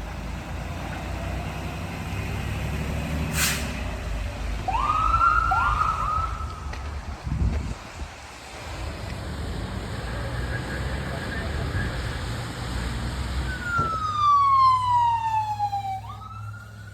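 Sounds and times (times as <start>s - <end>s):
vehicle engine rumble: 0.0s - 16.9s
short hiss: 3.3s - 3.8s
emergency siren winding up: 13.5s - 16.9s.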